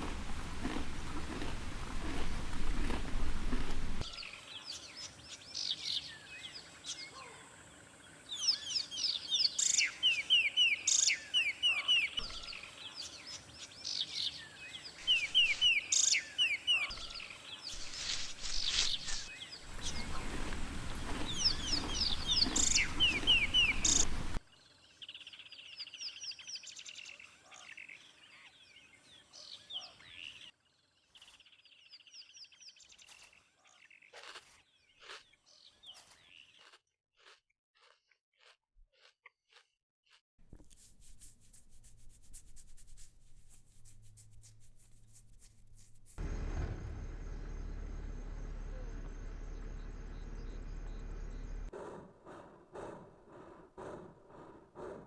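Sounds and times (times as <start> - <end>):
birds chirping: 0.0 - 24.4, 48.5 - 55.0.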